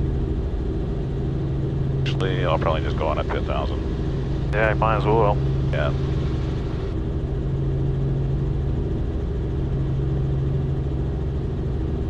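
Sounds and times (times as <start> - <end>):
helicopter engine and rotors droning: 0.0 - 12.0.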